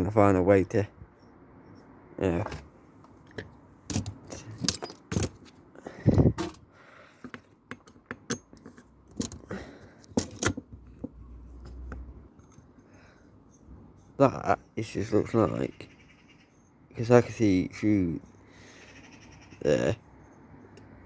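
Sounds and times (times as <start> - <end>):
metal parts clinking and rattling: 3.2 - 6.6, 7.3 - 11.7.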